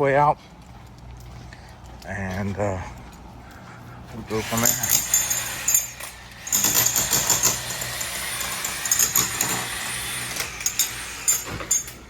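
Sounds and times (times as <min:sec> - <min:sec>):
power tool chipping brick: 0:04.4 - 0:12.0.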